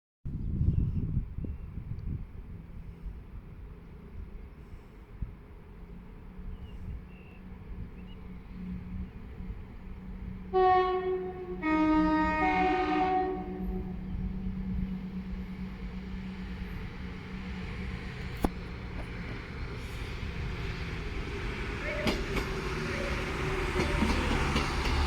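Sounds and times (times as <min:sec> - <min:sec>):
low hum of train: 0:00.3 - 0:25.0
train horn two-tone call: 0:10.5 - 0:14.3, 0:21.8 - 0:23.4.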